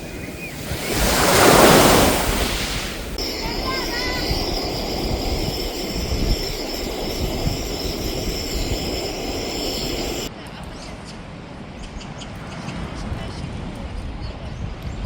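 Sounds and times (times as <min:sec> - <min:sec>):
sea surf on shore: 0:00.0 - 0:10.3
wind: 0:00.0 - 0:15.0.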